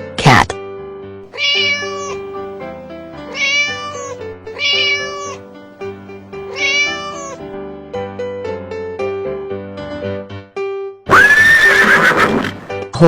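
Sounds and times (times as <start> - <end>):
cat meowing: 1.3 - 2.4, 3.2 - 5.5, 6.4 - 7.5
background music with sustained notes: 2.1 - 11.0.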